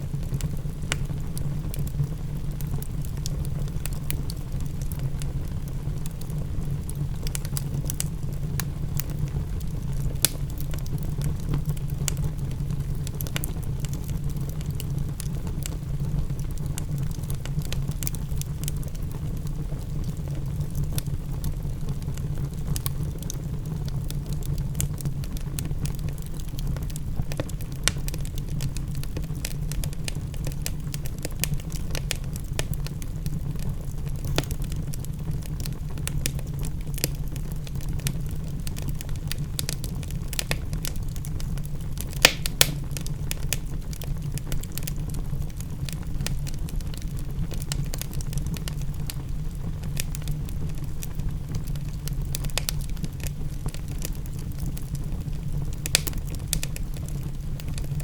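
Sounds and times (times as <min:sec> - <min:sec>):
wood fire crackling: 0:00.0 - 0:58.0
sharp fire pops: 0:34.1 - 0:45.6.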